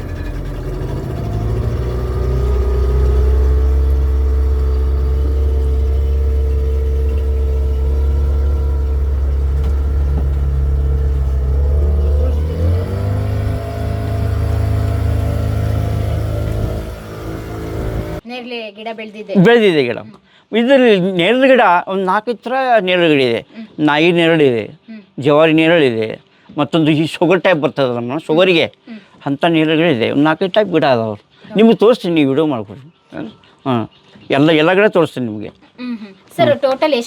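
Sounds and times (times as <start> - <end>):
motorboat engine running: 0.0 - 18.2.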